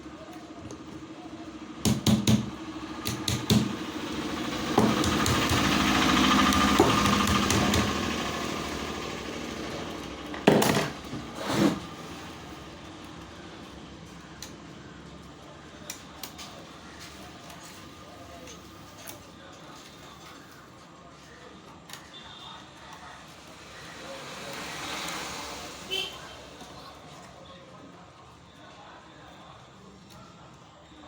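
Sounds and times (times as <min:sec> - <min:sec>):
angle grinder motor running: 0:03.8 - 0:10.2.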